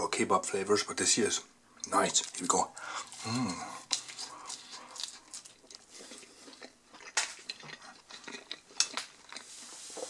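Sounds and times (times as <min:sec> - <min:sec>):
chewing crunchy pizza: 0:02.1 - 0:10.0.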